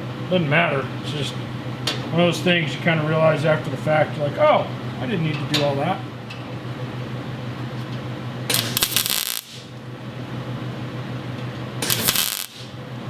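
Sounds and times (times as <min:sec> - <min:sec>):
welding arc crackling: 0:08.5 - 0:09.8, 0:11.8 - 0:12.8.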